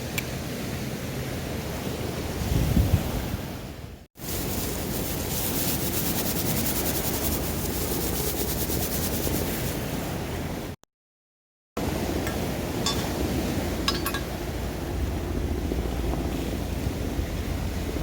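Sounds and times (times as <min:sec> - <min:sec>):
sea surf rushing: 0:00.0 - 0:10.8, 0:11.8 - 0:18.0
wind buffeting microphone: 0:02.0 - 0:04.0.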